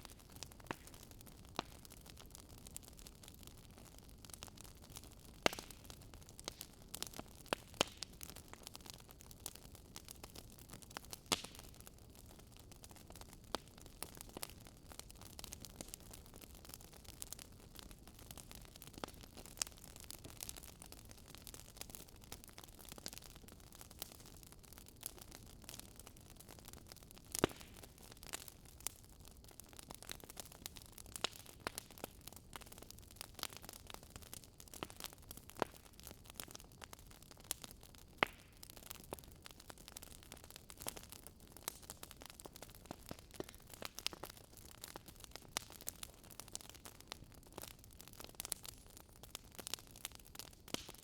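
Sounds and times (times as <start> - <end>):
wood fire crackling: 0.0 - 51.0.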